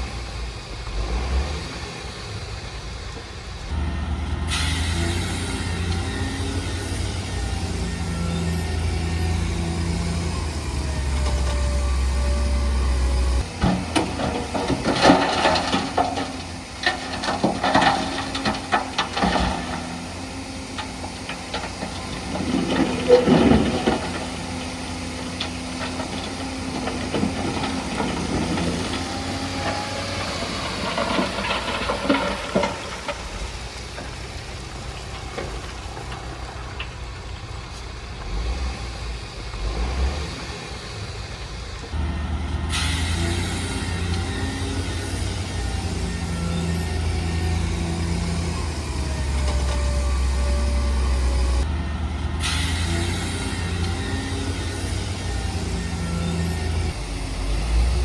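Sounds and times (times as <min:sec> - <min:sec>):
diesel engine running: 0:00.0 - 0:58.0
hiss: 0:04.5 - 0:08.6, 0:42.7 - 0:45.4, 0:52.4 - 0:53.9
metal clanking and rattling: 0:13.0 - 0:34.2.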